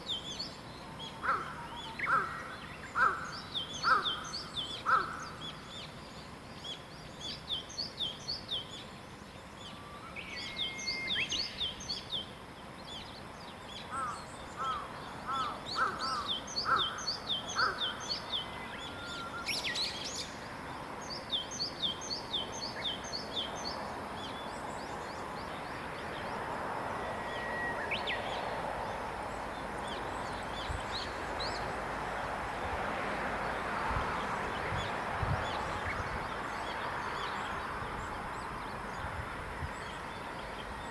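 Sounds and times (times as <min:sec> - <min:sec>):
bird whistling lower notes: 0:09.8 - 0:12.0, 0:27.0 - 0:28.4.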